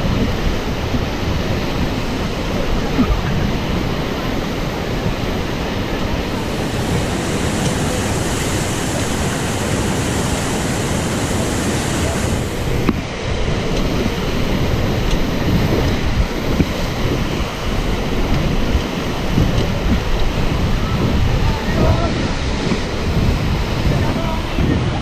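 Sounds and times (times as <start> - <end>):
river rapids roaring: 0.0 - 25.0
wind buffeting microphone: 0.0 - 25.0.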